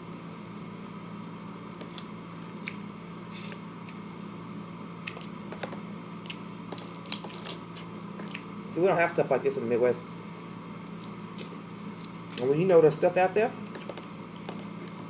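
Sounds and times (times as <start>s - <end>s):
steady low hum: 0.0s - 15.0s
person chewing: 1.7s - 4.1s, 5.0s - 8.6s, 10.4s - 12.4s, 13.6s - 15.0s.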